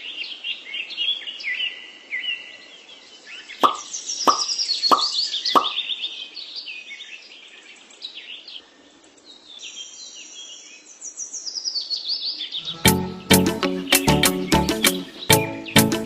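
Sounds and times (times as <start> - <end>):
small birds chirping: 0.0 - 16.0
short plops: 3.6 - 5.8.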